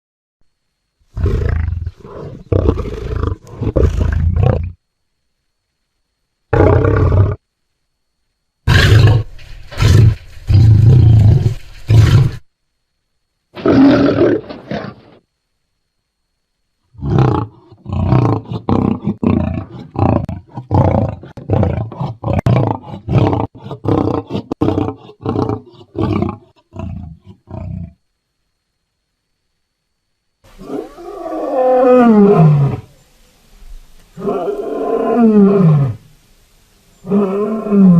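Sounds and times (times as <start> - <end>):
lion roaring: 1.2 - 4.8, 6.5 - 7.4, 8.7 - 12.4, 13.6 - 15.2, 17.0 - 28.0, 30.6 - 32.9, 34.2 - 36.0, 37.0 - 37.9.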